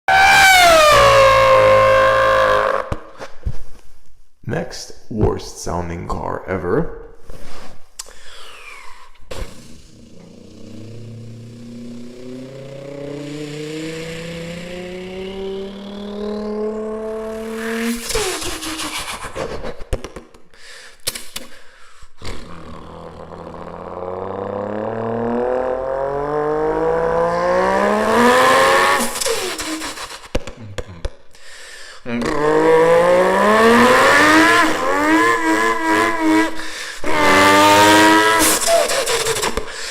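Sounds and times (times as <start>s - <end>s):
person imitating car revs: 0.1s - 2.9s, 8.3s - 19.0s, 22.2s - 31.1s, 32.0s - 39.9s
mouth sputtering clicks and pops: 8.0s - 8.2s.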